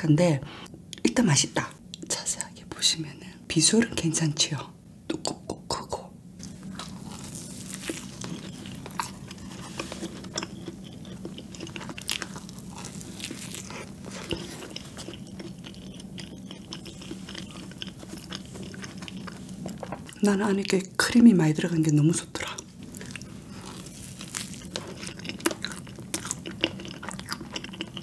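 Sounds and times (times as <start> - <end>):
faint steady hum: 0.0 - 28.0
wet mouth sounds: 6.4 - 19.9
biting and chewing donut: 6.4 - 20.2, 22.5 - 28.0.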